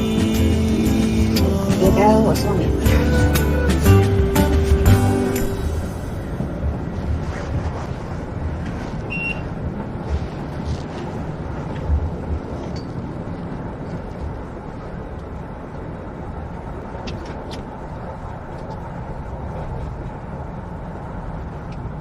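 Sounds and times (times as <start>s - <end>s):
vehicle rumble from inside: 0.0s - 22.0s.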